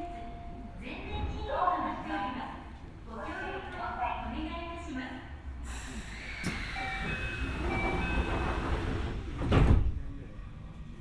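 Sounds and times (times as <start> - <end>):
train doors thumping shut: 6.4 - 10.1
door chime beeps: 6.8 - 8.6.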